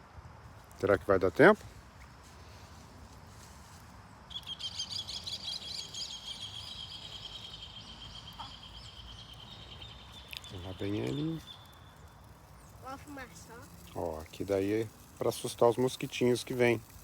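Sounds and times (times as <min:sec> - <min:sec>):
bird chattering trill: 0:04.3 - 0:13.9.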